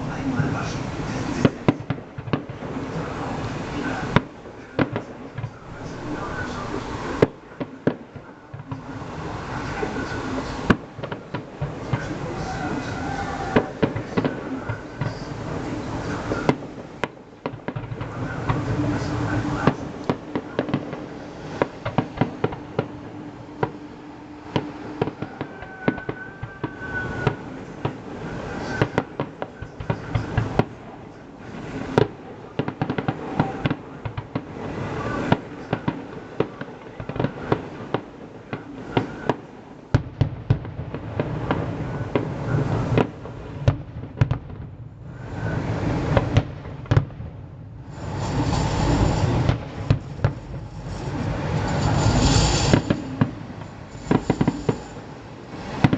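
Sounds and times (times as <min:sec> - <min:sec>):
fireworks bangs and crackles: 0:00.0 - 0:55.9
firework whistle: 0:08.5 - 0:44.3, 0:45.0 - 0:47.1, 0:47.8 - 0:55.9
low rumble: 0:40.1 - 0:55.8.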